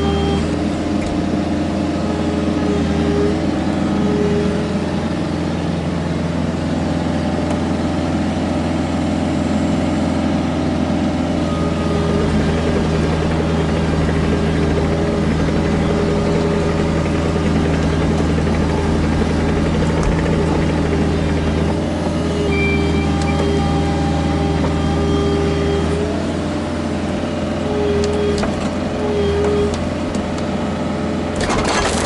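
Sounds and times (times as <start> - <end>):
excavator diesel engine running: 0.0 - 32.0
hydraulic whine: 11.2 - 32.0.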